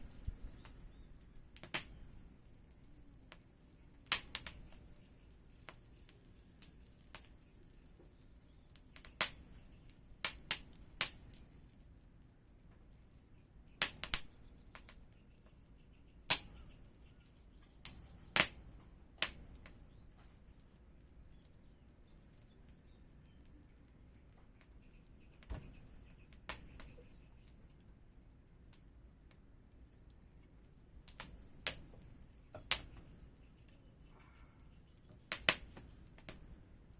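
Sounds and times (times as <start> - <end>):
faint low hiss: 0.0 - 36.9
wood fire crackling: 0.0 - 36.9.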